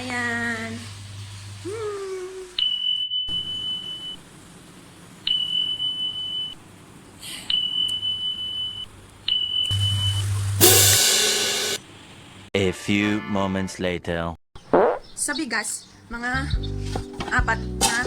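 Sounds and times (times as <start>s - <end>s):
electronic beeper long beeps: 7.5s - 11.0s
beeper click: 9.4s - 10.9s.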